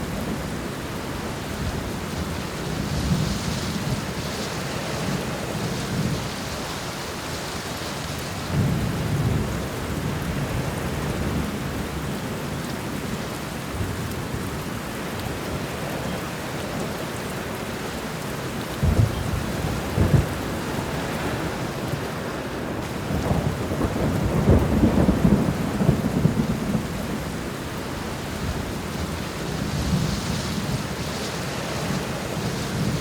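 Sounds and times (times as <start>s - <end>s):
heavy rain falling: 0.0s - 33.0s
thunder rumbling and cracking: 18.7s - 22.1s, 22.7s - 33.0s.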